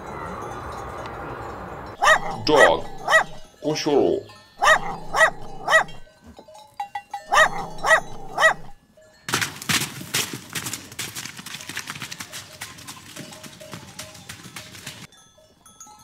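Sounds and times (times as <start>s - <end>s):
dog barking: 2.0s - 3.5s, 4.6s - 6.0s, 7.3s - 8.8s
clatter of rapid clicks: 9.7s - 15.1s.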